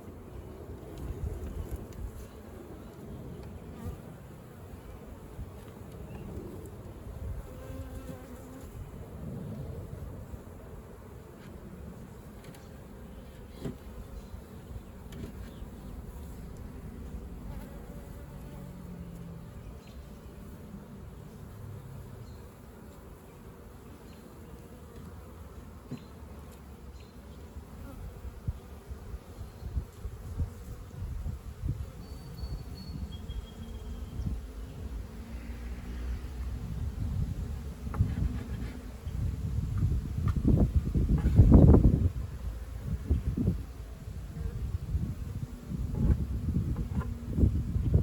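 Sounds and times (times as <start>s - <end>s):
bee droning past: 15.8s - 25.4s, 31.8s - 36.9s.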